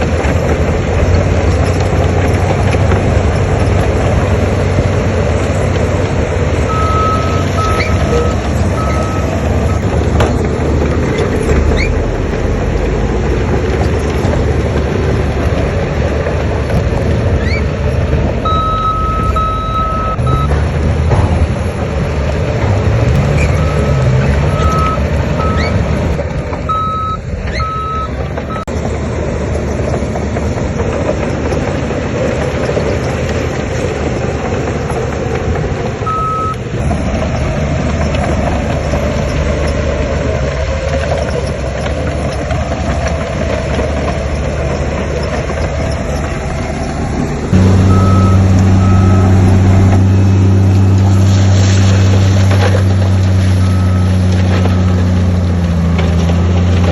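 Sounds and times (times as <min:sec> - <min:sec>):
heavy machinery diesel engines: 0:00.0 - 0:56.9
loud engine drone: 0:00.0 - 0:56.9
reversing alarm beeping: 0:06.7 - 0:10.0, 0:18.4 - 0:20.6, 0:23.5 - 0:25.8, 0:26.7 - 0:28.7, 0:36.1 - 0:36.6, 0:47.6 - 0:50.0, 0:53.6 - 0:55.0.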